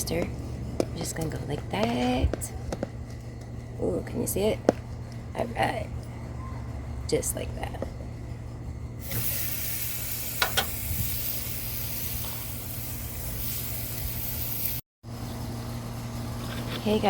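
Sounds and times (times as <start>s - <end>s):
sauce sizzling on a hot grill: 9.0s - 14.8s.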